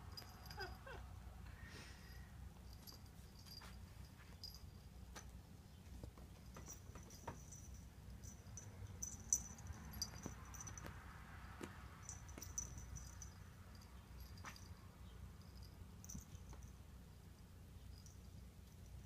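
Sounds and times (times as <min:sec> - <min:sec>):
kittens squeaking: 0:00.2 - 0:01.1
paws and claws tapping floor: 0:02.8 - 0:07.6, 0:10.0 - 0:12.9.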